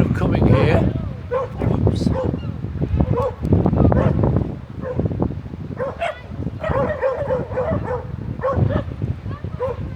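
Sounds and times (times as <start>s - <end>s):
dogs yapping and yelping: 5.8s - 8.9s.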